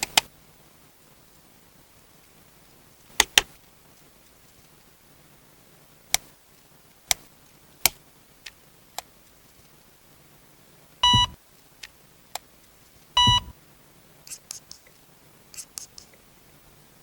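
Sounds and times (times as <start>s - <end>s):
electronic toy beeping: 11.0s - 11.4s, 13.2s - 13.5s.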